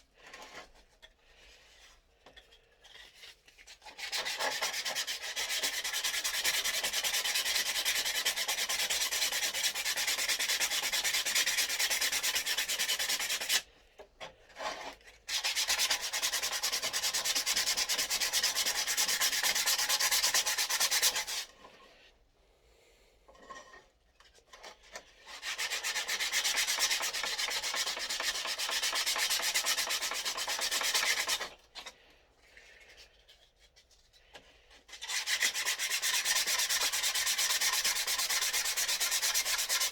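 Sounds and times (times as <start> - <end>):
sandpaper rubbing on wood: 3.9 - 13.6, 15.3 - 21.5, 25.4 - 31.5, 35.0 - 39.9.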